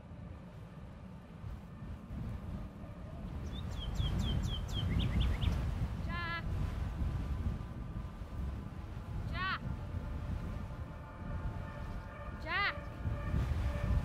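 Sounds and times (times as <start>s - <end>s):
steady low rumble: 0.0s - 14.0s
songbird whistled notes: 3.4s - 5.6s.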